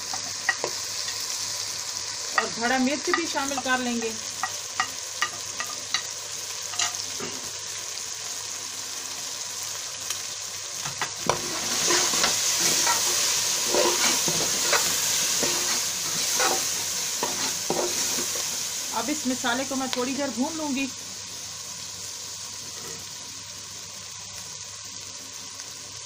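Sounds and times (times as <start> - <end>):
oil sizzling in a pot: 0.0 - 26.0
spoon scraping a metal pot: 11.3 - 18.3.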